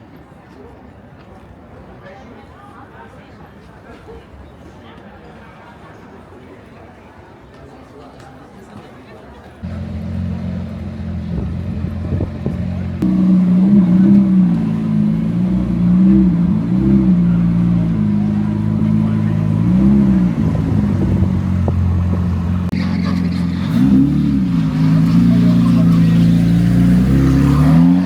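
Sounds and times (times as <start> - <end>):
car engine idling and revving: 9.6 - 28.0
second louder engine: 9.6 - 28.0.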